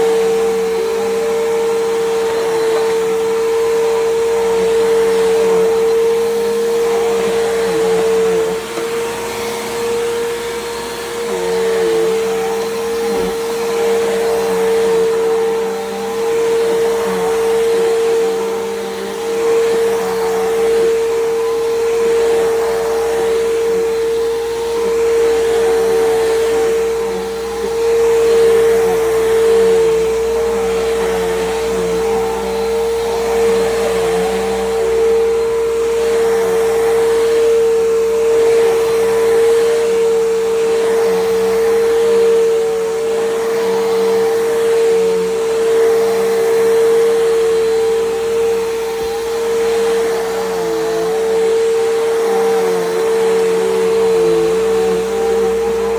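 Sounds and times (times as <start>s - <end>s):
upright vacuum cleaner whining: 0.0s - 55.9s.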